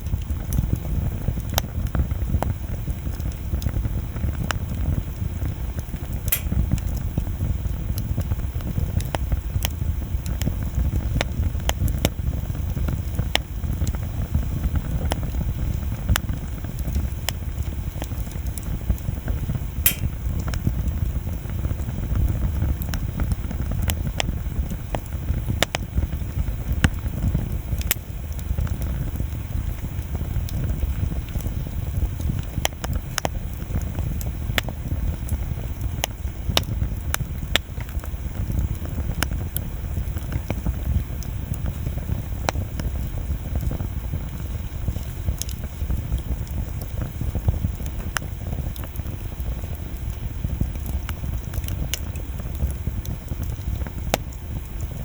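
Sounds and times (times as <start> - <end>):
campfire crackling: 0.0 - 55.0.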